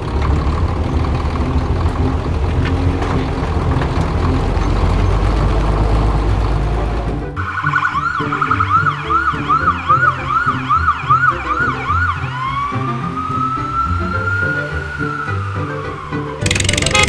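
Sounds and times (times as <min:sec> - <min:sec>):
background music: 0:01.7 - 0:17.0
emergency siren yelping and wailing: 0:07.4 - 0:17.0.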